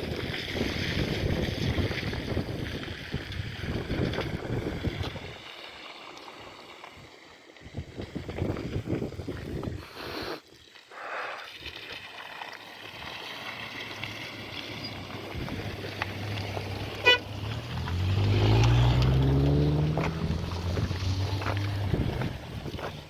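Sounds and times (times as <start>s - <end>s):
vehicle engine speeding up: 13.9s - 23.0s.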